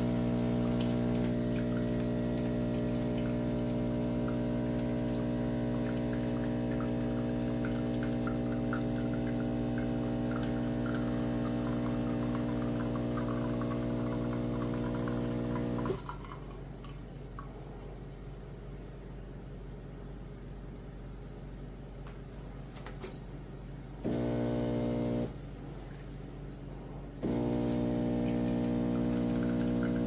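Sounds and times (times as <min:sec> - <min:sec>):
espresso machine pump humming: 0:00.0 - 0:16.6, 0:24.0 - 0:25.4, 0:27.2 - 0:30.0
coffee dripping into cup: 0:00.3 - 0:17.6, 0:28.1 - 0:30.0.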